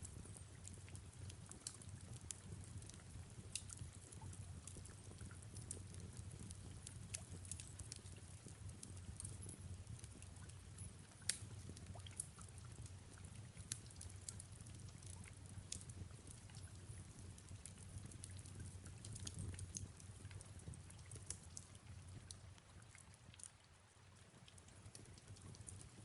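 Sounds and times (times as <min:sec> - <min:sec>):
fireplace crackling: 0:00.0 - 0:26.0
rain hiss with low rumble: 0:00.0 - 0:26.0.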